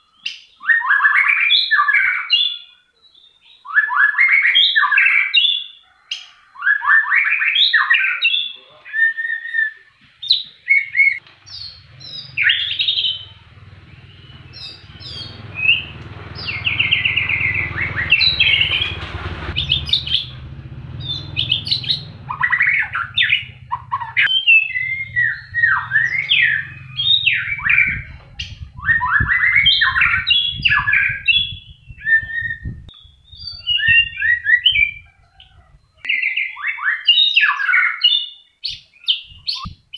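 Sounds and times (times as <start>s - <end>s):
bird singing varied song: 0.0s - 39.9s
low hum: 11.2s - 29.0s.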